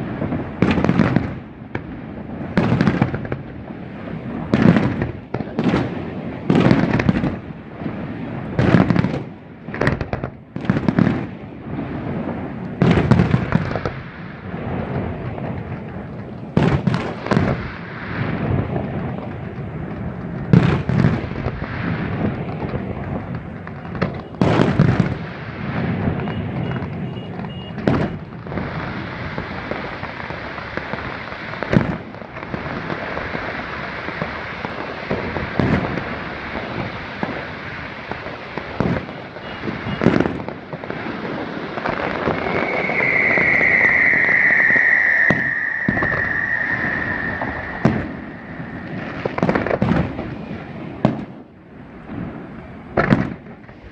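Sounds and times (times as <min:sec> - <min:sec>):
fireworks crackling: 0:00.0 - 0:53.9
firework shell bursts booming: 0:41.8 - 0:50.3
high falling whistle: 0:42.0 - 0:49.7.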